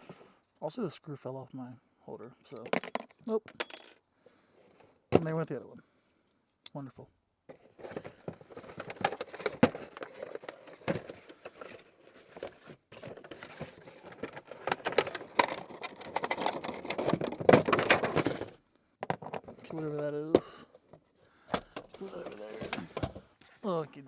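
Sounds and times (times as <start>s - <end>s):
small parts scraping: 7.5s - 20.3s
small objects rustling: 7.5s - 20.7s, 21.8s - 23.4s.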